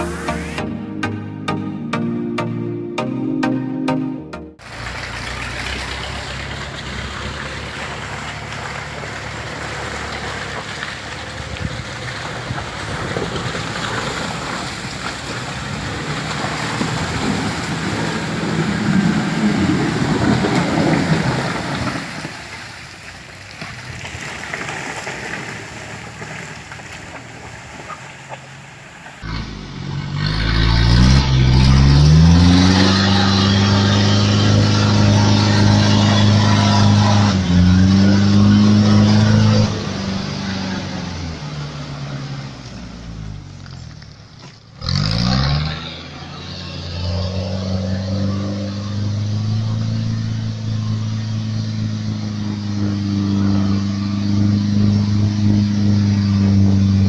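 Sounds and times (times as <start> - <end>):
vehicle engines and road hum: 0.0 - 2.6, 4.5 - 57.0
engine revving up: 29.2 - 43.4, 44.8 - 57.0.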